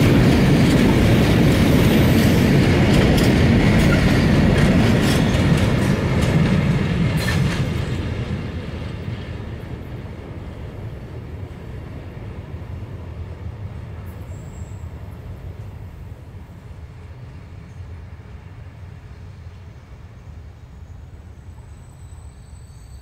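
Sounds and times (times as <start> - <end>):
wheels clicking over rail joints: 0.0 - 9.8
train rumble: 0.0 - 23.0.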